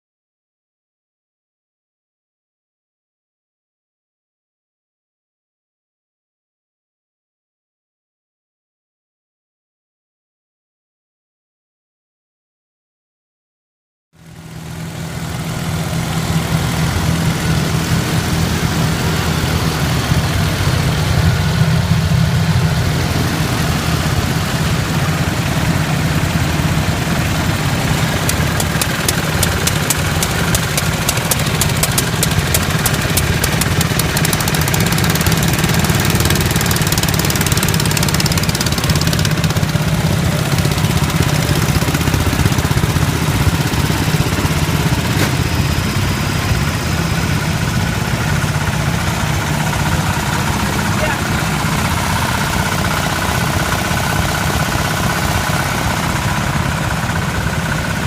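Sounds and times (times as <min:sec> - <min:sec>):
garden tractor engine running: 0:14.2 - 0:58.0.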